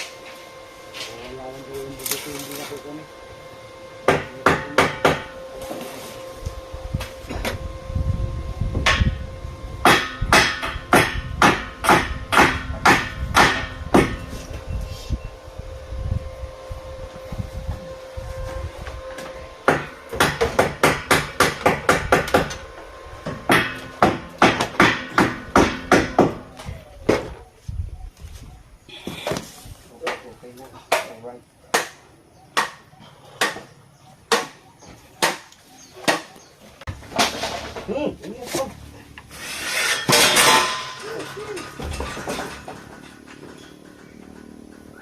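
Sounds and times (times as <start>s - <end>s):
hammer strikes: 4.0s - 5.4s, 9.8s - 14.3s, 19.6s - 22.6s, 23.2s - 27.3s, 30.9s - 32.0s, 32.6s - 32.8s, 33.4s - 33.7s, 34.3s - 34.6s.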